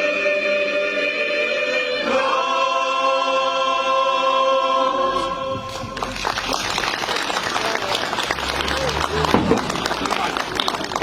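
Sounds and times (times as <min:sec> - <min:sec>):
choir singing a carol: 0:00.0 - 0:06.0
applause: 0:05.7 - 0:11.0.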